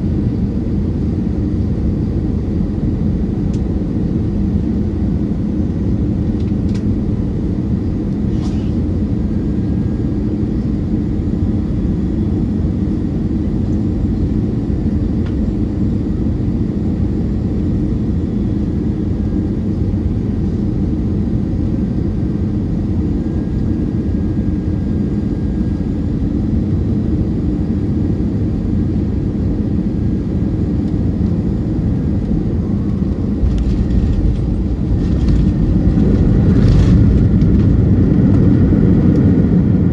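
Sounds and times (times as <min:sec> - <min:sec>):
airliner cabin airflow rush: 0:00.0 - 0:11.7, 0:27.8 - 0:39.9
jet engine hum: 0:00.0 - 0:39.9.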